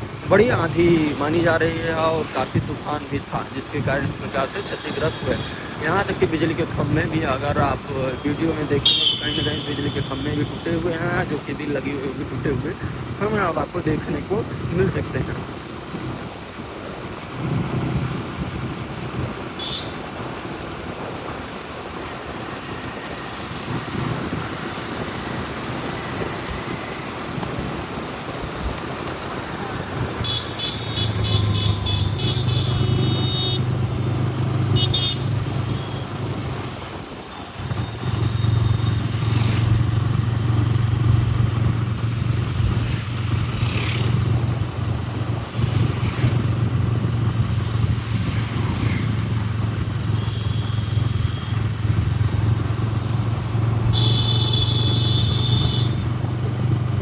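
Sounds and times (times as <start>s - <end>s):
car horns beeping: 8.8s - 10.7s, 30.2s - 33.8s, 34.6s - 36.1s, 53.9s - 56.1s.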